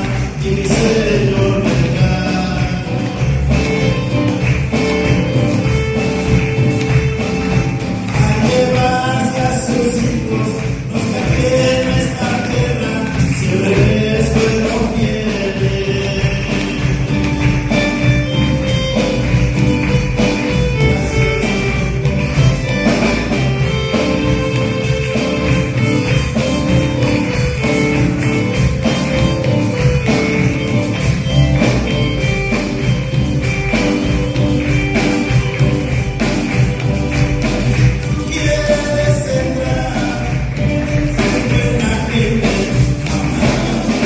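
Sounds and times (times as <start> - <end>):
band playing gospel song: 0.0 - 44.0
tambourine shaking: 0.0 - 44.0.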